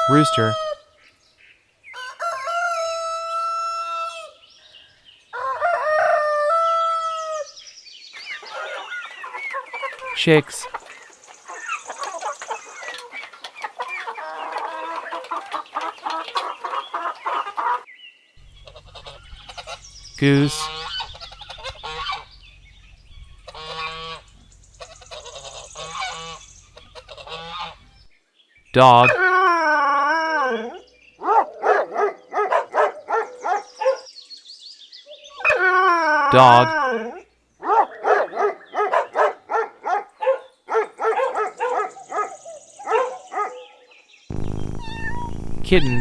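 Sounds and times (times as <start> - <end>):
goose honking: 23.5 - 24.3, 27.0 - 27.8
dog barking high-pitched: 31.2 - 34.1, 37.6 - 43.6.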